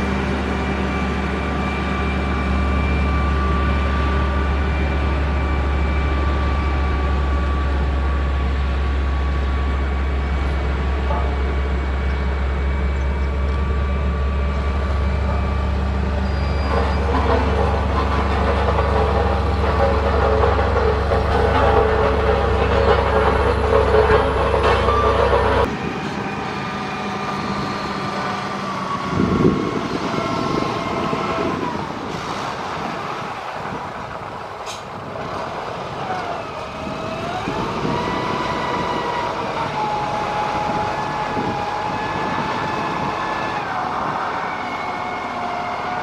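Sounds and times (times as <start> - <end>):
diesel engine rumbling: 0.0 - 46.0
machinery rattling clatter: 14.6 - 27.4.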